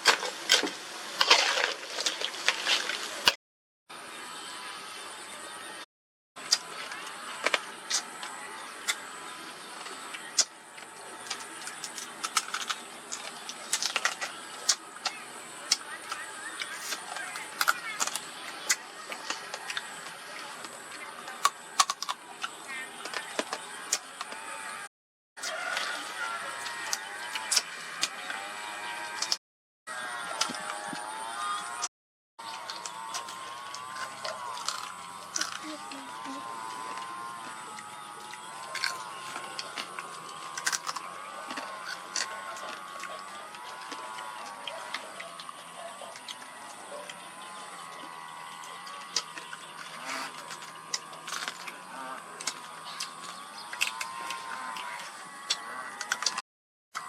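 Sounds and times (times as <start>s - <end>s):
crab shells cracking and chewing: 0.0s - 3.4s, 6.4s - 9.1s, 9.8s - 24.4s, 25.4s - 28.4s, 32.4s - 35.7s, 36.5s - 56.4s.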